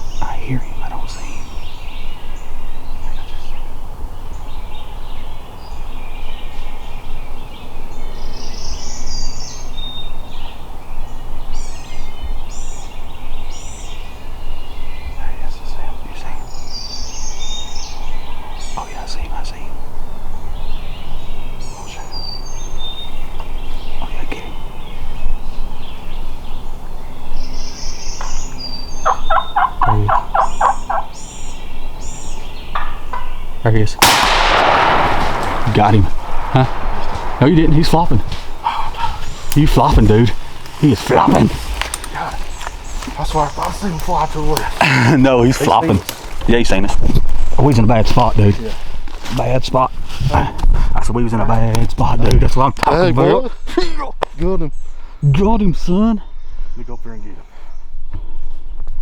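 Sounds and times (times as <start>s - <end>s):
songbirds chirping: 0.0s - 59.0s
wild turkey gobbling: 28.9s - 31.6s
wind rumble on microphone: 34.4s - 40.6s.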